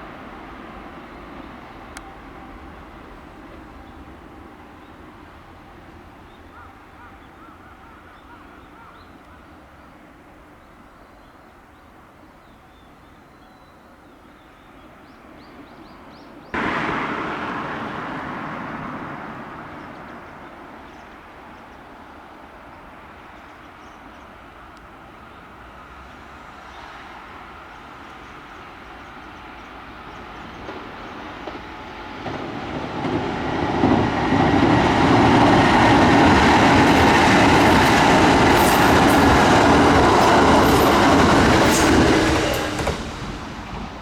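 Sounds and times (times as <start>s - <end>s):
train rushing past: 16.6s - 22.3s, 25.2s - 44.0s.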